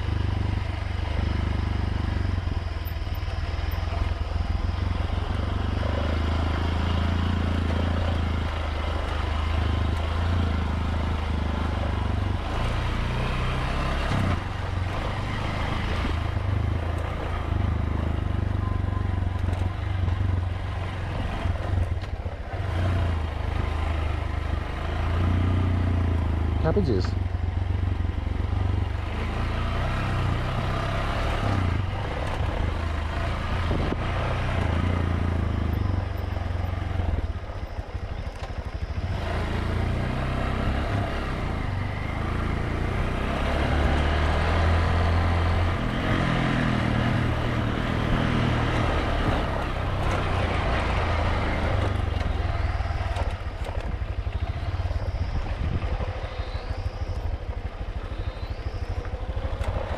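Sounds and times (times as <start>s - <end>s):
motorbike engine running: 0.0s - 59.9s
wind noise on microphone: 33.6s - 34.2s, 55.1s - 56.1s.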